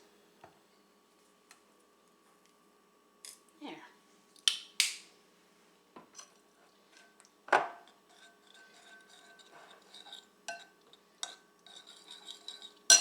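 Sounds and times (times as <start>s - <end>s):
utensils and dishes clinking: 8.0s - 13.0s.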